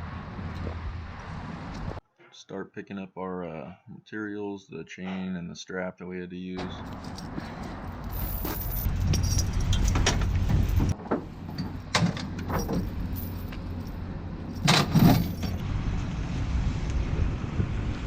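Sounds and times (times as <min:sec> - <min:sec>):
chain clinking and rattling: 0:06.7 - 0:15.6.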